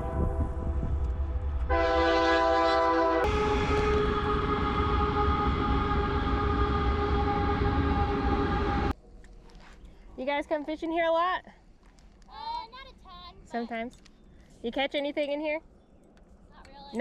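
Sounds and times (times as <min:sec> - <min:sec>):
steady low rumble: 0:00.0 - 0:02.1, 0:03.2 - 0:09.3
train horn chord blasts: 0:00.0 - 0:08.9.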